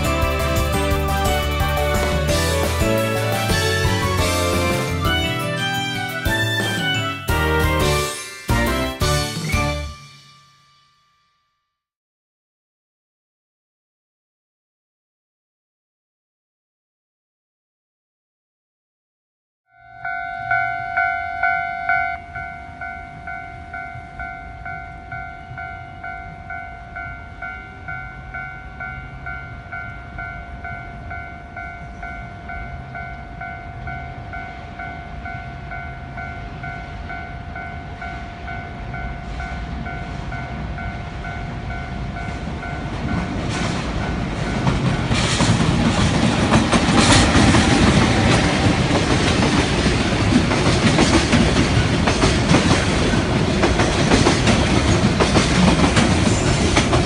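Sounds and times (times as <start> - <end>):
train passing: 0.0 - 10.9, 20.0 - 57.0
level-crossing alarm ringing: 19.8 - 43.3
wheels clacking over rail joints: 42.5 - 57.0.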